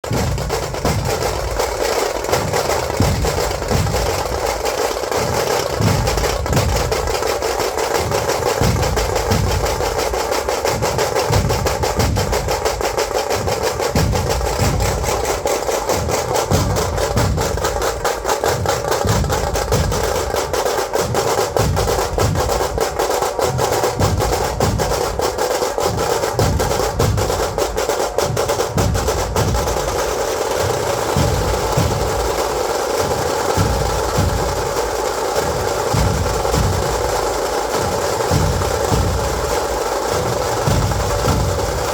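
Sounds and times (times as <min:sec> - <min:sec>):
heavy drum beats: 0:00.0 - 0:41.9
rapid snare drum roll: 0:00.0 - 0:41.9.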